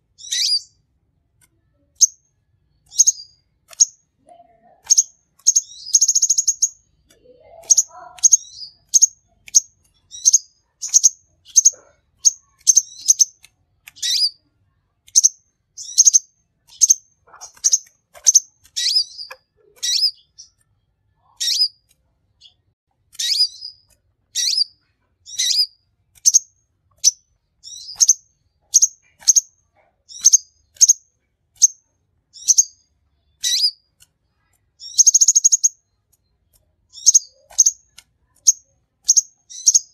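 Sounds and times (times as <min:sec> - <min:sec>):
bird chirping sharply: 0:00.2 - 0:00.8, 0:02.8 - 0:04.0, 0:04.6 - 0:06.8, 0:07.4 - 0:14.4, 0:15.1 - 0:20.6, 0:21.2 - 0:21.8, 0:23.2 - 0:29.5, 0:32.4 - 0:33.8, 0:34.8 - 0:36.0, 0:36.9 - 0:39.9.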